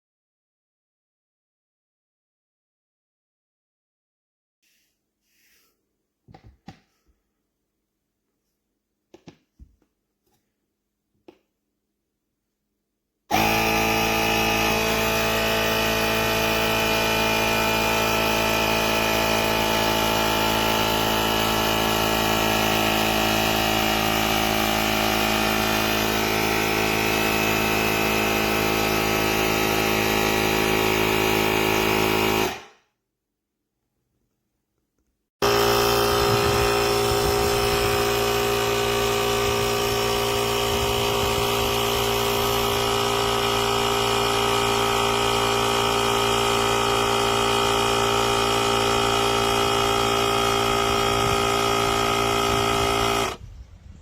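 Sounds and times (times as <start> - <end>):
electric air compressor whining: 13.3 - 32.8, 35.4 - 53.5.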